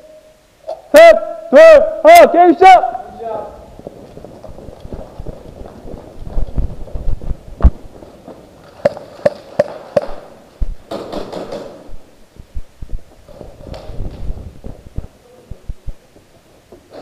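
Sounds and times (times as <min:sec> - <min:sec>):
low thumps and knocks: 0:03.7 - 0:09.0, 0:10.0 - 0:16.3.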